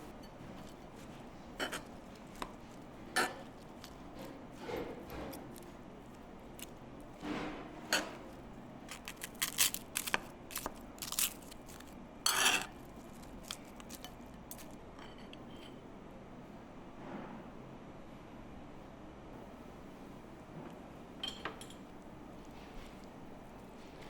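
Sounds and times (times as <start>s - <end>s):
scraping rustle: 0.0s - 14.8s
utensils and dishes clicking: 0.1s - 7.3s, 7.9s - 15.4s.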